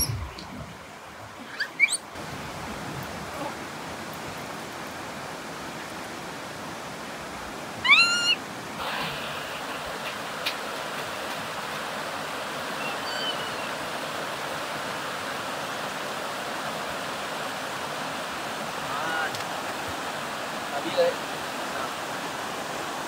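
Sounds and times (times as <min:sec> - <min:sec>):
water rushing over rocks: 0:00.0 - 0:23.0
macaque calling: 0:01.4 - 0:02.1, 0:07.8 - 0:09.8, 0:12.8 - 0:13.8.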